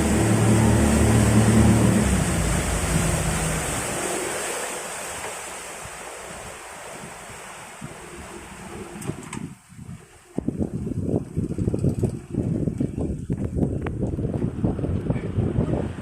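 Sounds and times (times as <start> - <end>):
rushing water: 0.0 - 11.4
motorboat engine running: 0.0 - 16.0
wind: 0.0 - 16.0.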